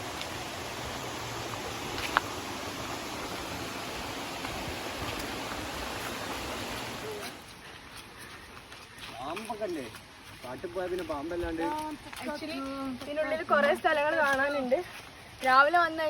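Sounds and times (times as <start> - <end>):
stream water rushing: 0.0 - 7.6.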